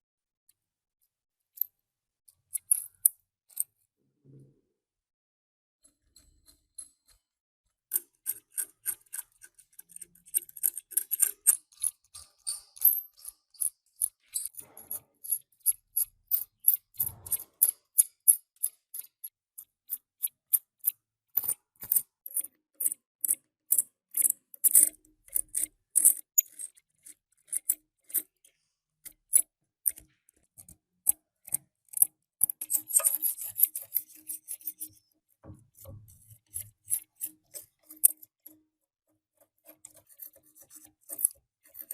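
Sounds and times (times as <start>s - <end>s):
hand scraping rusty metal: 39.6s - 41.9s.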